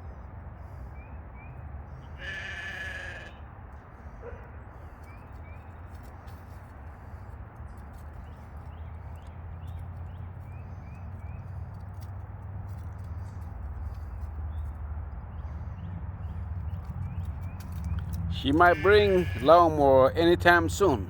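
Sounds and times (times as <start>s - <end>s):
animal bleating: 2.1s - 3.4s, 18.4s - 19.8s.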